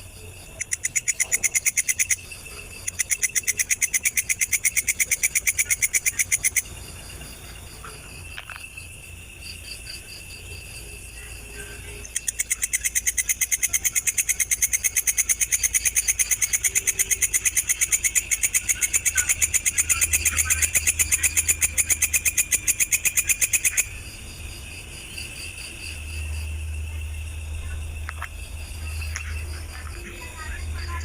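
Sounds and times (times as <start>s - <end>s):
cricket chirping: 0.0s - 31.0s.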